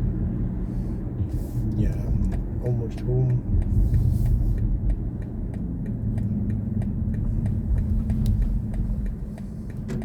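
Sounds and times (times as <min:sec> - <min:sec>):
road and tyre rumble: 0:00.0 - 0:10.0
light ticking: 0:01.8 - 0:10.0.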